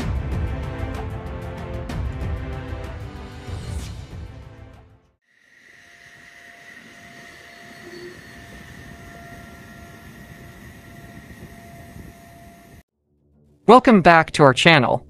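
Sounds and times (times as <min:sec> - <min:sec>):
thin high whines: 0:05.3 - 0:12.8
mechanical rumble: 0:05.5 - 0:12.8.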